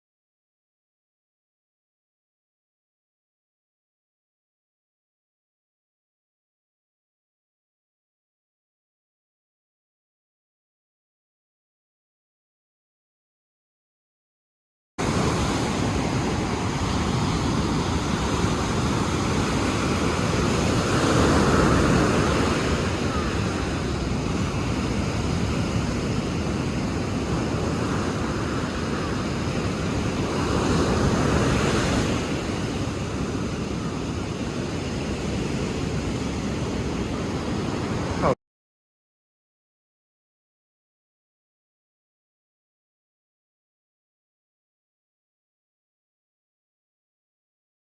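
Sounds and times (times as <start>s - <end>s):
ocean waves washing in: 15.0s - 38.4s.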